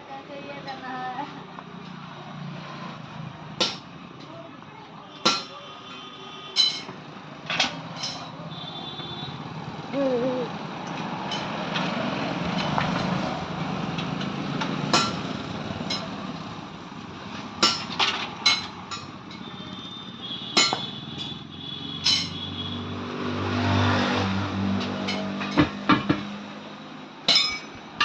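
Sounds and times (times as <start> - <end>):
metal tools clinking on a wheel: 6.6 - 8.4, 10.8 - 11.9, 15.8 - 16.2, 17.6 - 19.9, 20.6 - 21.4, 22.0 - 22.5, 24.8 - 26.3, 27.3 - 28.0.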